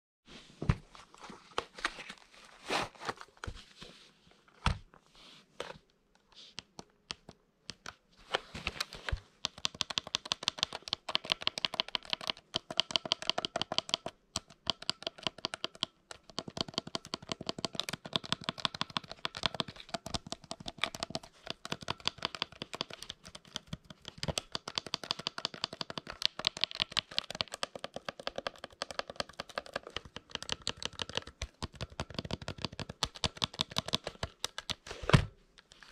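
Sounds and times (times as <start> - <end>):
calculator keys clicking: 9.4 - 34.9.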